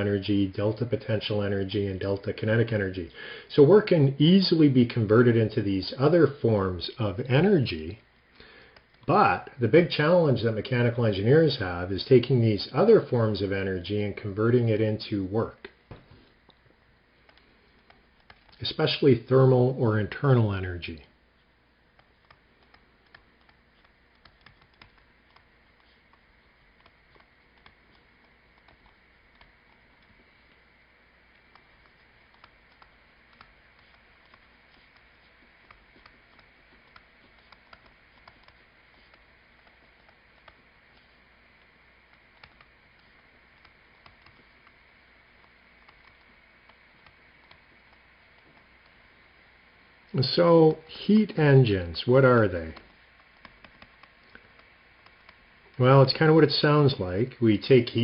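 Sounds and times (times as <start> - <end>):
small clicks: 16.4 - 19.0, 20.8 - 50.2, 52.1 - 56.8.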